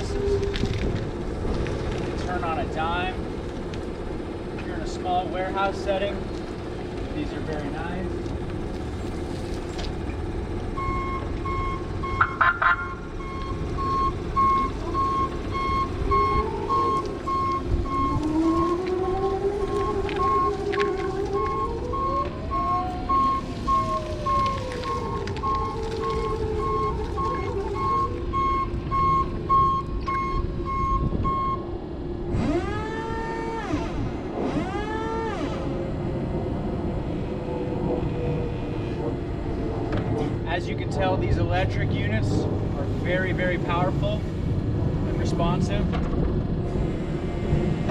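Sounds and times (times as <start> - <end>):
forklift reversing alarm beeping: 10.7 - 33.8
electric motor hum: 13.7 - 29.6, 32.2 - 40.2.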